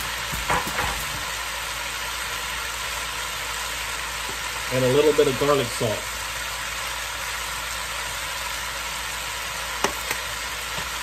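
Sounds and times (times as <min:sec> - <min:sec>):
vegetables sizzling in a pot: 0:00.0 - 0:11.0.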